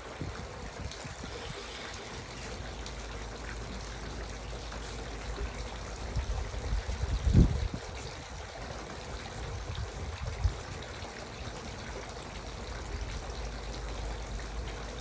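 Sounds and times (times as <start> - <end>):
fountain splashing: 0.0 - 15.0.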